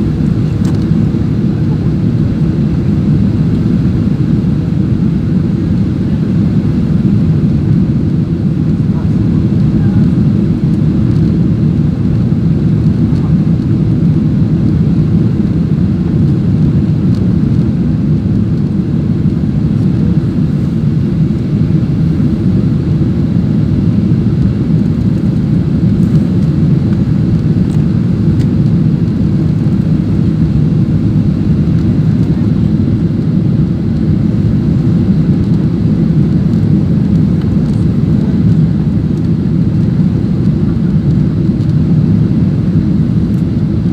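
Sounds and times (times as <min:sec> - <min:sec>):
airliner cabin engine drone: 0:00.0 - 0:43.9.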